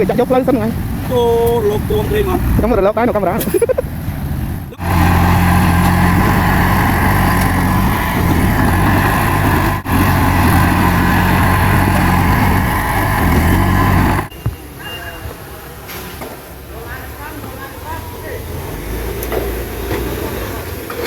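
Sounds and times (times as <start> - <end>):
heavy diesel engine running: 4.6 - 14.3.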